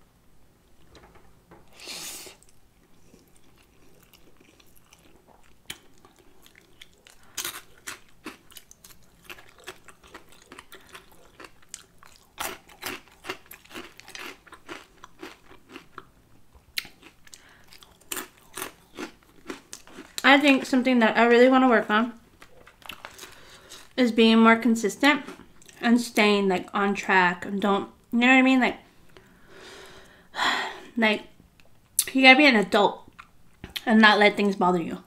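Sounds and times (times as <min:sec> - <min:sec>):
wet chewing with crunching: 0:02.3 - 0:20.6, 0:22.3 - 0:24.0.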